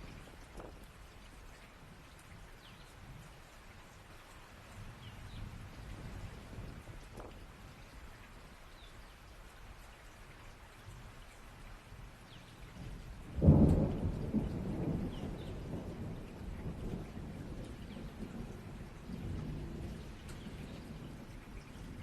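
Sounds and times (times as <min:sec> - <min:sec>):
steady rain: 0:00.0 - 0:22.0
thunderclap rumbling: 0:13.2 - 0:22.0.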